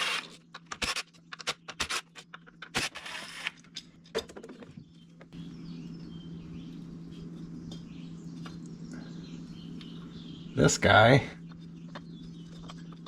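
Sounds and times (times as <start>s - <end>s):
steady low hum: 0.0s - 13.0s
birds chirping faintly: 3.9s - 13.0s.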